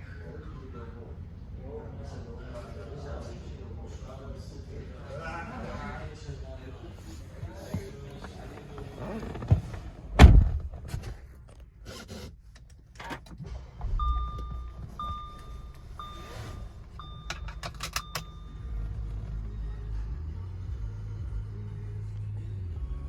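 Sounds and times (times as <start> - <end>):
car door shutting: 7.7 - 11.3
low rumble: 13.4 - 23.0
electronic warning chime: 14.0 - 18.9
handling clicks and rattles: 17.2 - 18.4.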